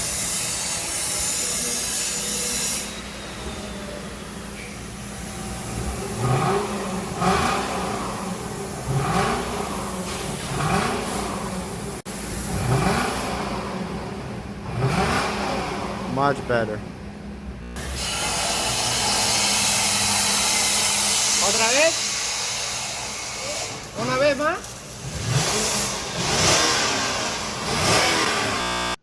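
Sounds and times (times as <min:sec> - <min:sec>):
car engine idling and revving: 0:03.0 - 0:18.0, 0:23.8 - 0:29.0.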